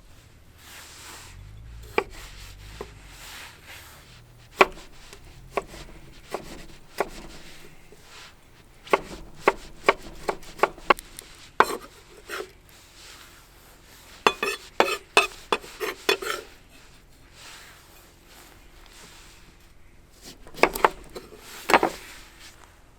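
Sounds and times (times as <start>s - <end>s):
knife chopping on cutting board: 1.9s - 3.0s, 4.5s - 12.5s, 14.3s - 16.5s, 20.2s - 22.2s.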